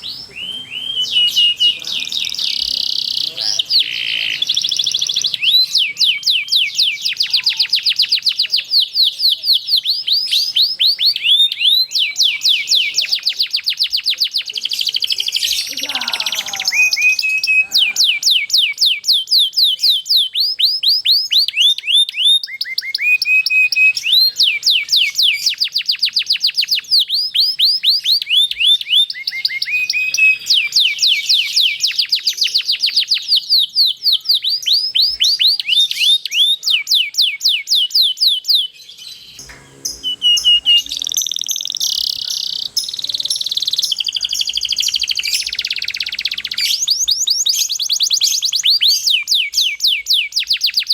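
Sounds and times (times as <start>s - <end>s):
canary singing rolled trills: 0.0s - 50.9s.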